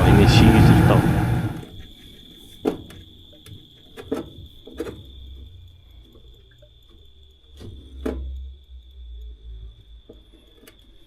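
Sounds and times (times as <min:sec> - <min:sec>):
high-pitched whine: 0:00.0 - 0:01.7
low hum: 0:00.0 - 0:01.7.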